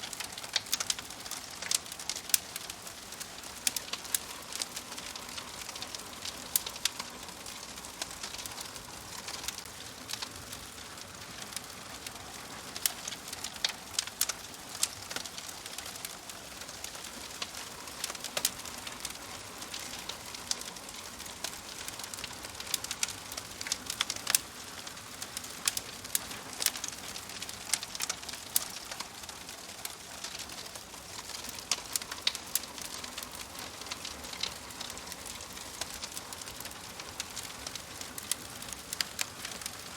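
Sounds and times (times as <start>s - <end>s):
wood fire crackling in stove: 0.0s - 39.9s.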